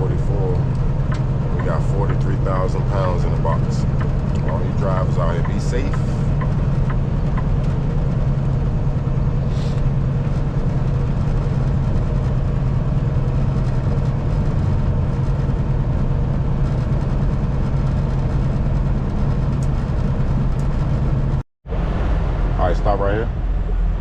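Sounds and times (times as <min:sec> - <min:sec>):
road noise: 0:00.0 - 0:24.0
truck engine running: 0:00.0 - 0:24.0.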